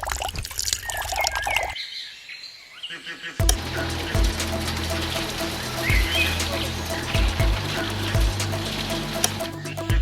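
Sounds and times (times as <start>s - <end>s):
background music with bass and beat: 3.4s - 10.0s.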